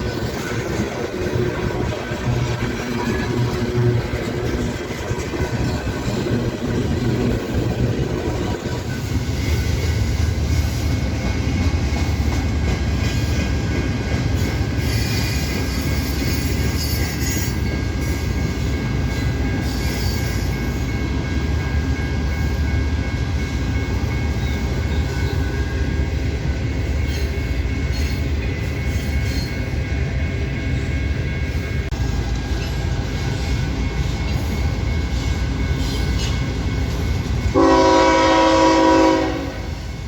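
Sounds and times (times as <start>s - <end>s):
wheel squeal: 14.4s - 18.4s, 19.1s - 20.9s.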